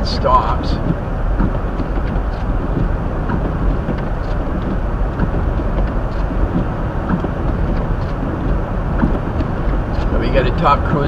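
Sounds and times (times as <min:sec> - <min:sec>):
low engine and road hum: 0:00.0 - 0:11.0
tyres running through snow: 0:00.0 - 0:11.0.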